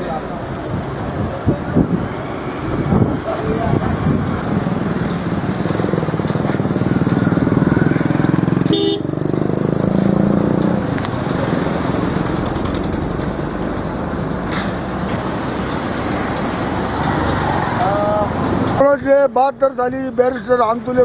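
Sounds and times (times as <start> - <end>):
road noise: 0.0 - 21.0
vehicle engine passing: 1.9 - 18.8
short horn toot: 8.7 - 9.1.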